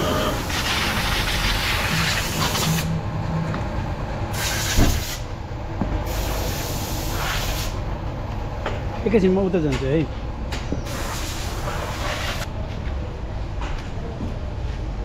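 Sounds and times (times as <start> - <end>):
water spray hissing against car: 0.3 - 2.9, 4.4 - 5.2, 6.1 - 7.8, 10.9 - 12.5.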